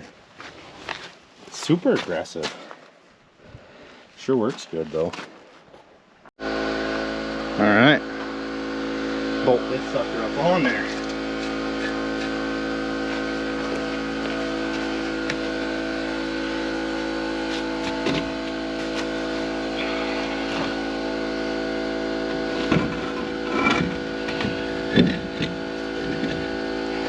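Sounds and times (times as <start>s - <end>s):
steady mechanical hum: 6.4s - 27.0s.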